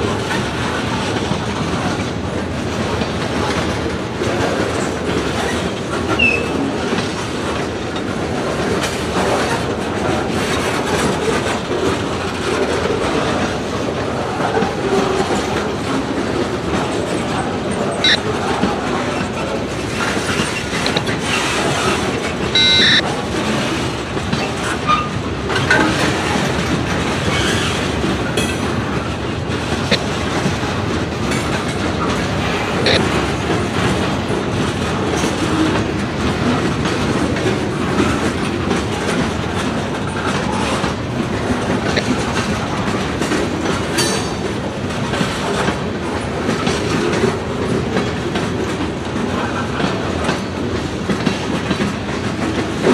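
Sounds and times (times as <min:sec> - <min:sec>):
wheels clacking over rail joints: 0:00.0 - 0:52.9
train wheel squeal: 0:05.4 - 0:06.8, 0:17.8 - 0:18.3, 0:19.0 - 0:23.0, 0:24.3 - 0:25.9, 0:27.2 - 0:28.4.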